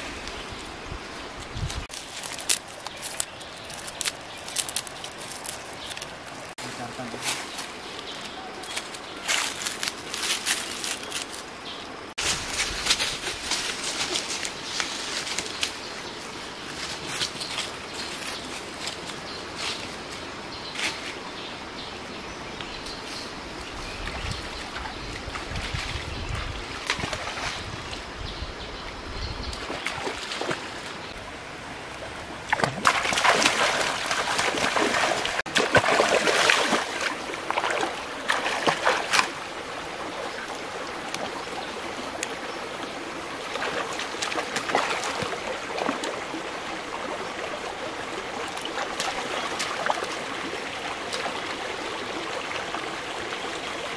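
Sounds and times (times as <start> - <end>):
water splashing: 31.8 - 53.9.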